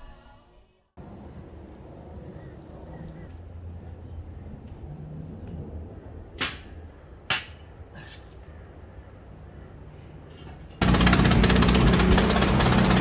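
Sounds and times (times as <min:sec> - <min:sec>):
loud steady mechanical noise: 0:01.0 - 0:03.8, 0:08.8 - 0:13.0.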